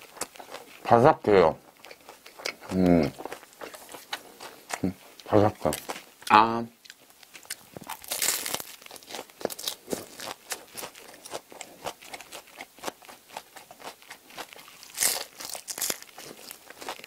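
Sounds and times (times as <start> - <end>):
bread crust crunching: 6.9 - 17.0.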